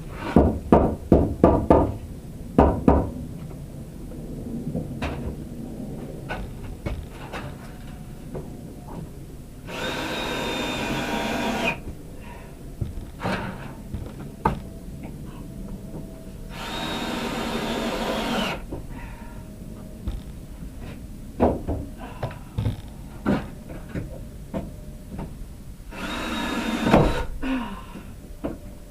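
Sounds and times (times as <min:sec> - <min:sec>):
cordless drill whining: 0:09.7 - 0:11.8, 0:16.5 - 0:18.6, 0:25.9 - 0:27.3
knocks and clatter: 0:12.8 - 0:16.2, 0:19.8 - 0:25.4.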